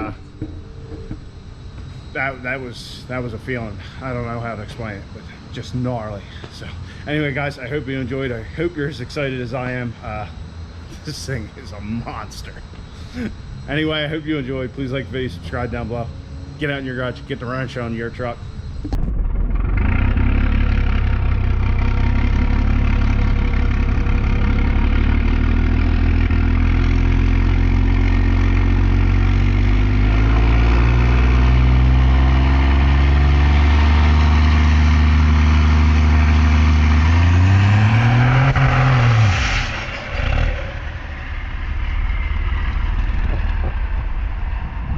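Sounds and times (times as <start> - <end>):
diesel truck engine revving: 18.8 - 44.2.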